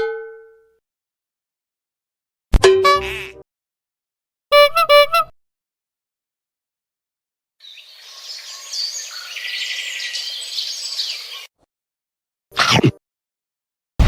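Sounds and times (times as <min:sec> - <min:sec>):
birds chirping: 0:07.6 - 0:11.5.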